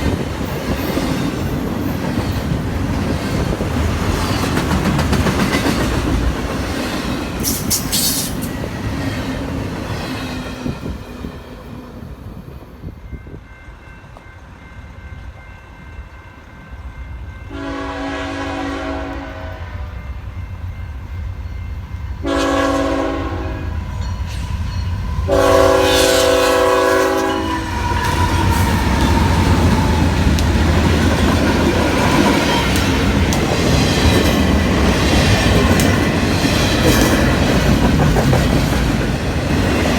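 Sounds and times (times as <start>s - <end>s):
train wheels clacking on rails: 0.0s - 12.4s, 24.0s - 39.9s
train rumbling past: 0.0s - 39.9s
locomotive air horn blasts: 17.5s - 19.9s, 22.2s - 23.8s, 25.3s - 28.7s.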